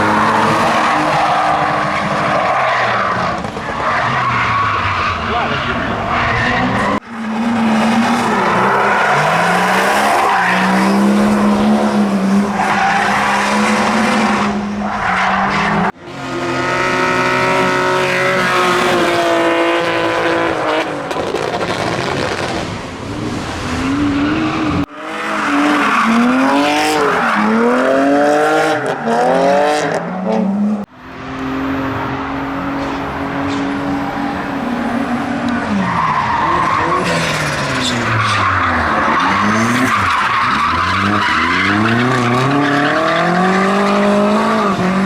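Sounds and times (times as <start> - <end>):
car engines revving high: 0.0 - 45.0.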